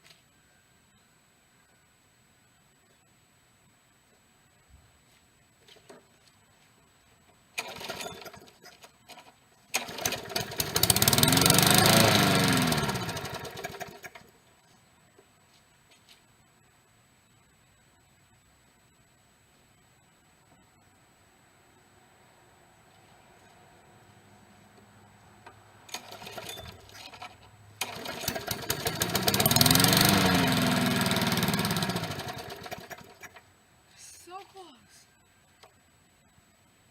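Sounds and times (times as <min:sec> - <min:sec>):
small engine starting: 0:07.6 - 0:14.3, 0:25.9 - 0:33.4.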